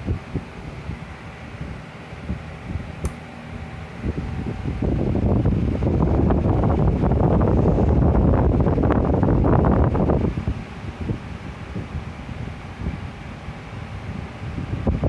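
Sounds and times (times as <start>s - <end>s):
air buffeting microphone: 0.0s - 15.0s
electric fan running: 0.0s - 15.0s
sharp click: 3.0s - 3.2s.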